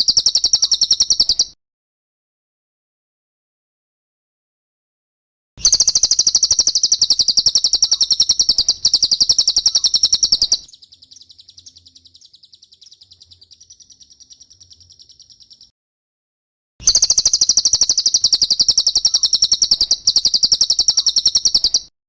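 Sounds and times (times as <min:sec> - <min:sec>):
bird trilling rapid high notes: 0:00.0 - 0:01.5, 0:05.6 - 0:15.7, 0:16.8 - 0:21.9.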